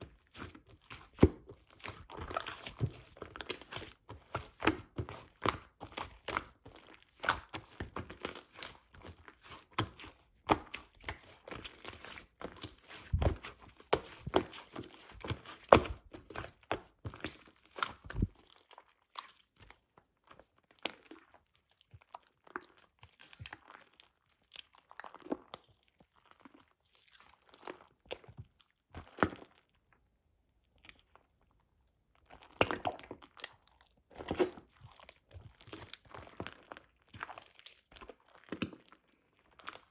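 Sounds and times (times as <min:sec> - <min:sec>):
slime squished by hand: 0:00.0 - 0:19.6.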